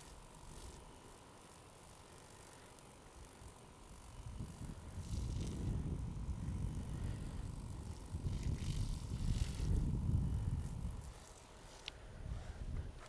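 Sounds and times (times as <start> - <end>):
wind gusting across microphone: 4.2 - 11.2.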